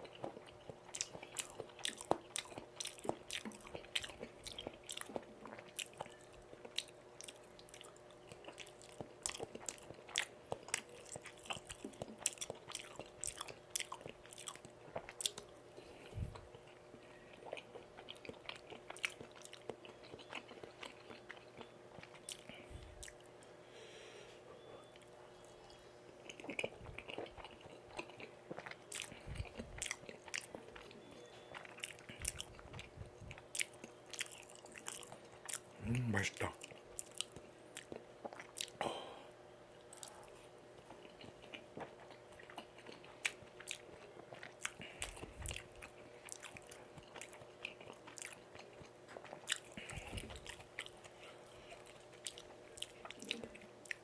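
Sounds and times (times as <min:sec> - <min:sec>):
close chewing mouth clicks: 0:00.0 - 0:15.6, 0:40.9 - 0:54.0.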